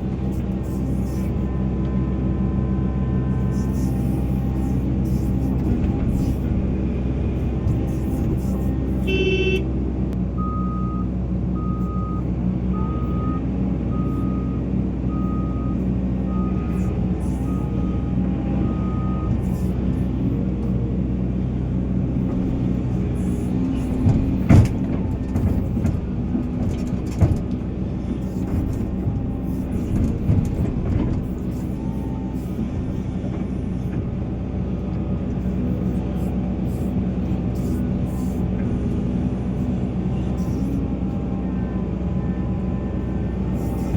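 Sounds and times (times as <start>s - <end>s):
excavator diesel engine running: 0.0s - 43.9s
short horn toot: 9.0s - 9.7s
reversing alarm beeps: 10.4s - 16.7s.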